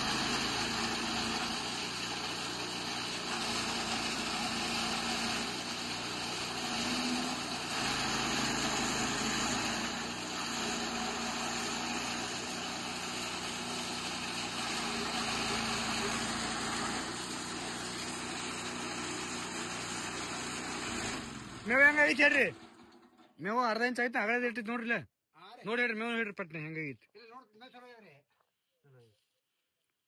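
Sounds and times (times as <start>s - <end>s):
chaff cutter machine running: 0.0s - 23.3s.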